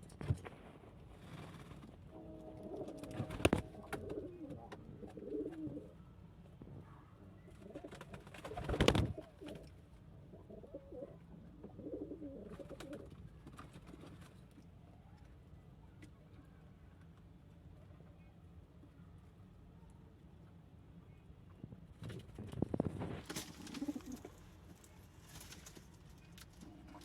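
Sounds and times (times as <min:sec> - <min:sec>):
pigeons cooing: 0:02.2 - 0:06.0, 0:07.5 - 0:13.1, 0:23.4 - 0:24.4.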